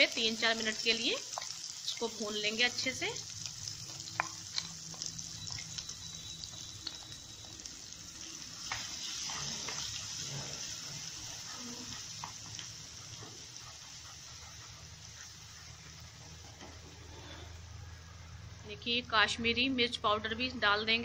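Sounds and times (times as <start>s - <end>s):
paste sizzling in hot oil: 0.0s - 17.7s
spatula stirring and scraping: 8.7s - 17.5s.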